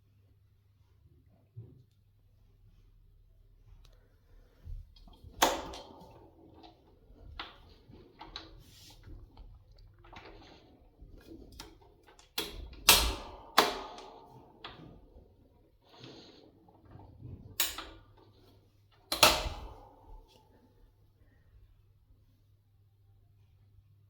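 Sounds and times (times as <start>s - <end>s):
sharp metallic clicks and clunks: 19.0s - 20.4s.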